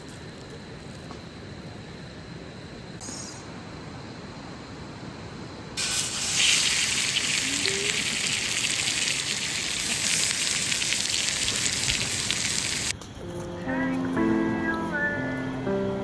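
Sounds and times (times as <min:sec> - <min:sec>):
quiet outdoor ambience: 0:00.0 - 0:16.0
food sizzling in a hot pan: 0:05.8 - 0:12.9.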